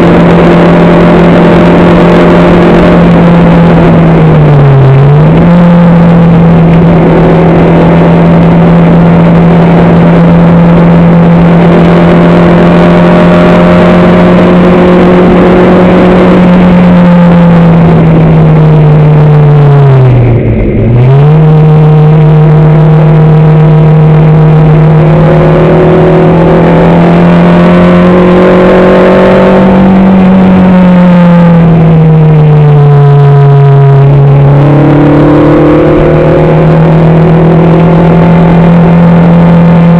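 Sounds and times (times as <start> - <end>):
racing car engine at high revs: 0.0 - 39.9.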